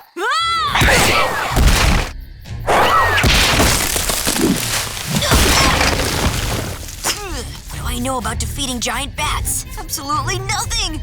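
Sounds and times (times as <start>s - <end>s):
cartoon hits and crashes: 0.8s - 2.1s, 2.7s - 7.8s.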